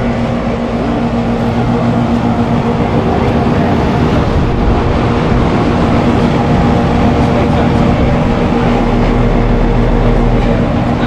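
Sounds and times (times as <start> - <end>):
compressor hum: 0.0 - 11.0
condenser fan rushing: 0.0 - 11.0.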